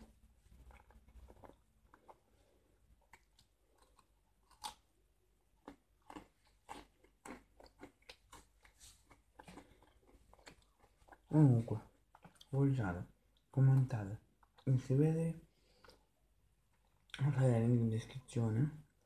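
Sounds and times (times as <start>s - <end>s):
person chewing crunchy snack: 0.0s - 12.5s.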